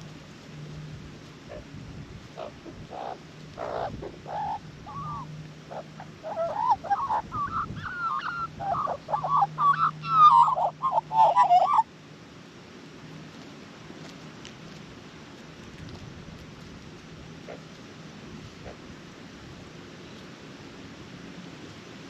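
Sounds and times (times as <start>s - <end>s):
magpie warbling call: 2.4s - 11.9s.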